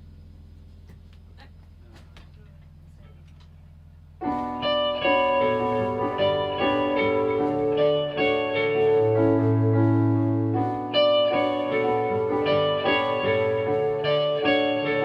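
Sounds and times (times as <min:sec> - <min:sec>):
bass line: 0:03.7 - 0:15.0
guitar chords: 0:04.1 - 0:15.0
live rock band playing: 0:04.2 - 0:15.0.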